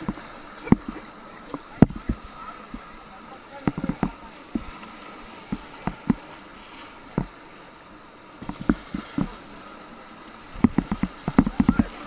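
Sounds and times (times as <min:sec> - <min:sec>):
knocks and splashes: 0:00.0 - 0:03.0, 0:03.6 - 0:07.5, 0:08.4 - 0:09.6, 0:10.4 - 0:12.0
river water rushing: 0:00.0 - 0:12.0.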